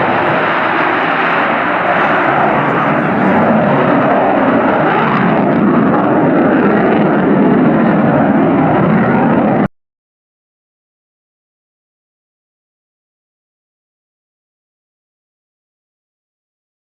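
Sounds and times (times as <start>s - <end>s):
loud jet engine noise: 0.0s - 9.7s.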